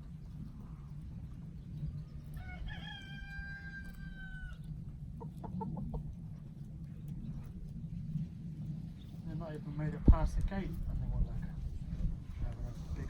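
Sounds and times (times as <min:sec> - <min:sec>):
steady low rumble: 0:00.0 - 0:13.0
chickens clucking: 0:00.1 - 0:07.8
rooster crowing: 0:02.4 - 0:04.7.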